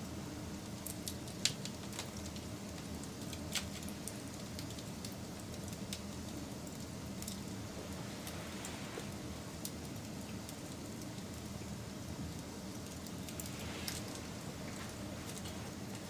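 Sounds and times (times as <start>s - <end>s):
fire crackling and popping: 0.2s - 16.0s
flames rushing: 6.9s - 16.0s.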